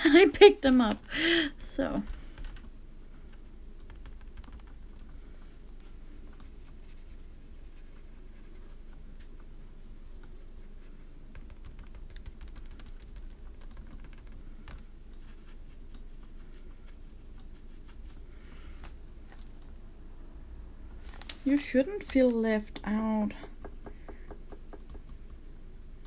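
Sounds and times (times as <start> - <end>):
steady low hum: 0.0 - 26.0
brush taps and clicks on paper: 22.1 - 25.5.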